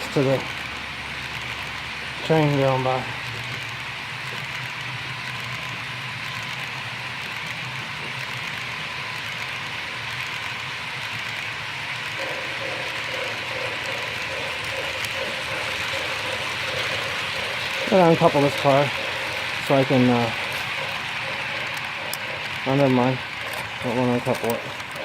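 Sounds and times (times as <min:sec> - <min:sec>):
model train motor whirring: 0:00.0 - 0:25.0
pulsing hum: 0:11.7 - 0:25.0.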